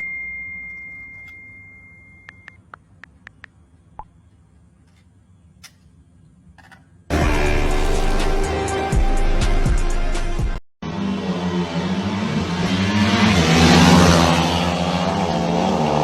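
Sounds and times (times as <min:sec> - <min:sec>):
high-pitched electronic beep: 0:00.0 - 0:02.6.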